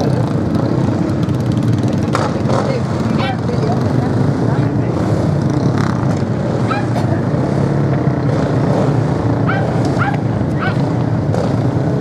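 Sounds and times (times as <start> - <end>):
motorcycle engines droning: 0.0 - 12.0
dog yelping barks: 3.2 - 3.5, 6.6 - 7.1, 9.4 - 10.9.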